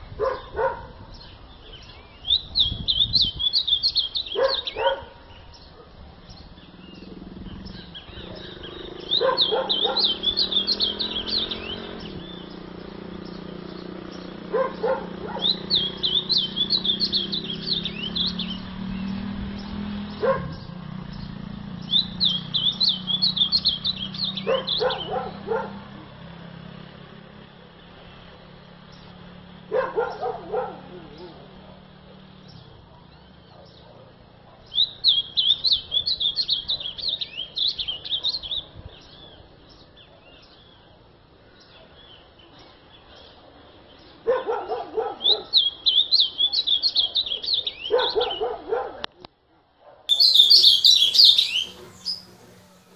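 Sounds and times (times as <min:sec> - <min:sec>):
bird warbling song: 0:00.0 - 0:26.0, 0:27.4 - 0:48.9, 0:50.1 - 0:52.9
lower-pitched bird calls: 0:00.0 - 0:26.0, 0:34.6 - 0:43.3, 0:44.0 - 0:48.6, 0:50.1 - 0:52.9.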